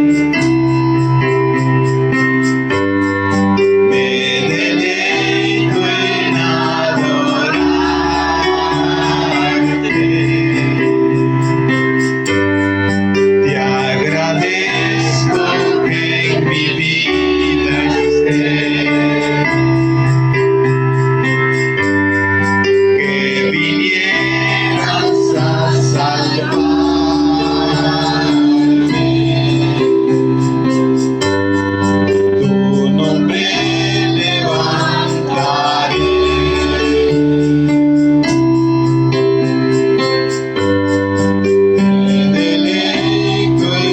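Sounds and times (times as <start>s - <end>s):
steady bass line: 0.0s - 43.9s
worship music on electric keyboard: 0.0s - 43.9s
person singing: 3.5s - 11.7s, 13.1s - 20.7s, 22.5s - 30.9s, 32.0s - 37.6s, 41.5s - 43.9s.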